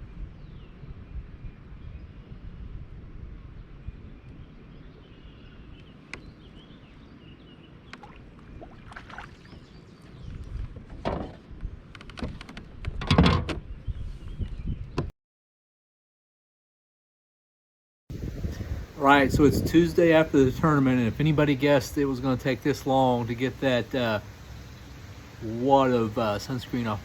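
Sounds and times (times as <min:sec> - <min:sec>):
wind rumble on microphone: 0:00.0 - 0:15.1, 0:18.1 - 0:22.5
knocks and splashes against hull: 0:08.0 - 0:09.7.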